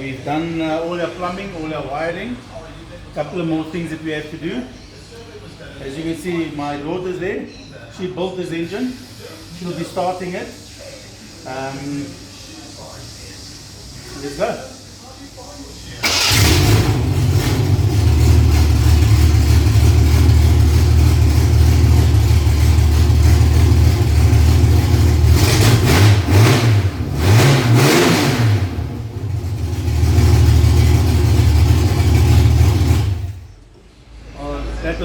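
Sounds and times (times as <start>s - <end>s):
car engine running and revving: 16.3s - 33.4s.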